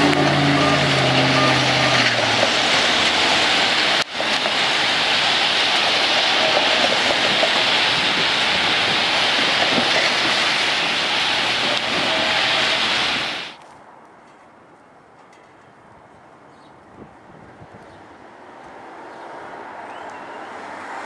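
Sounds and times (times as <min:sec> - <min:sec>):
train horn chord: 0:00.0 - 0:02.5, 0:11.6 - 0:13.5
train passing at speed: 0:00.0 - 0:13.6, 0:17.1 - 0:21.0.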